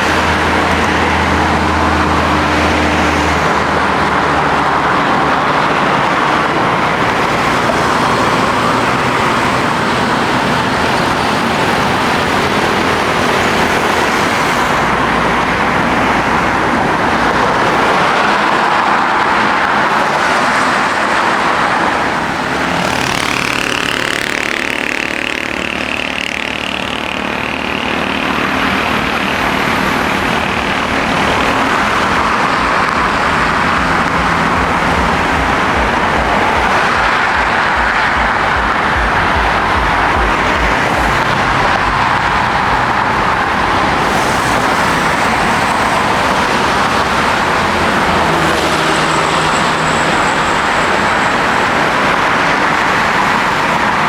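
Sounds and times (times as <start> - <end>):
jet engines whining: 27.5 - 54.0.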